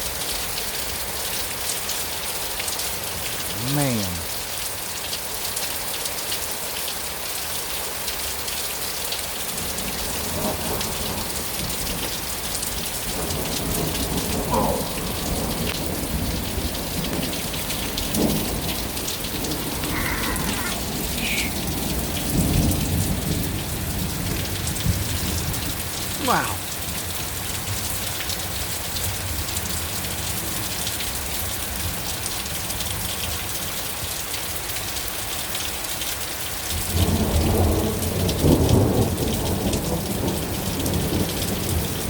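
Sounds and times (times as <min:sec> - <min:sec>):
pouring rain: 0:00.0 - 0:42.0
thunder rumbling: 0:09.6 - 0:26.2.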